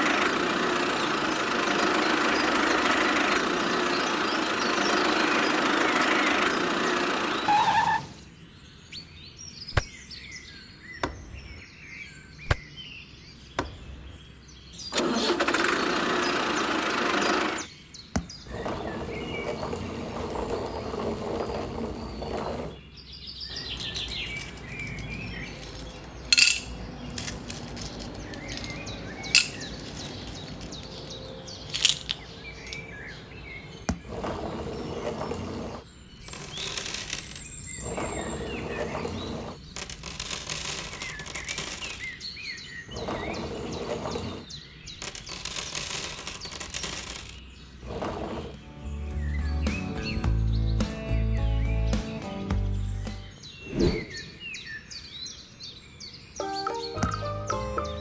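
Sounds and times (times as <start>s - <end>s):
birds chirping: 1.0s - 14.9s, 17.6s - 36.8s, 49.1s - 58.0s.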